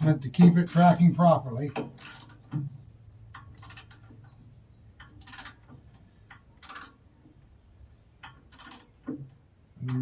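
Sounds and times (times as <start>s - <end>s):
metallic ratchet clicking: 2.0s - 2.4s, 3.4s - 4.1s, 5.2s - 5.6s, 6.6s - 7.0s, 8.5s - 8.9s.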